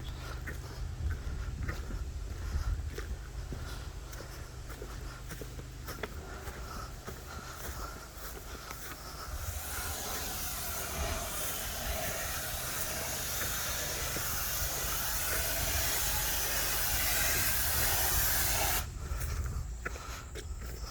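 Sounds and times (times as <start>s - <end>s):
steady low hum: 0.0s - 20.9s
pressure washer water jet hissing: 8.0s - 19.0s.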